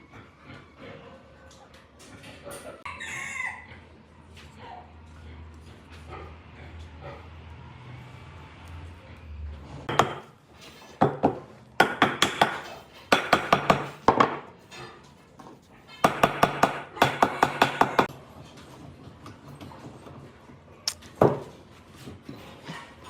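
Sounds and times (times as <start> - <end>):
sharp knocks: 9.9 - 10.3.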